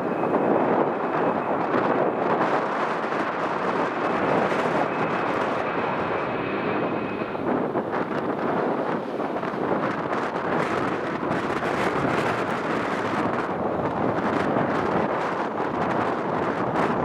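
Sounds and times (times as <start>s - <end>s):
jet engines running: 0.0s - 17.0s
wind buffeting microphone: 0.0s - 17.0s.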